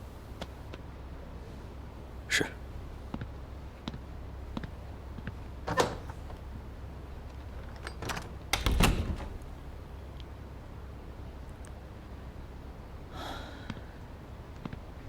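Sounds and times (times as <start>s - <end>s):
knocks and clatters: 7.4s - 9.7s.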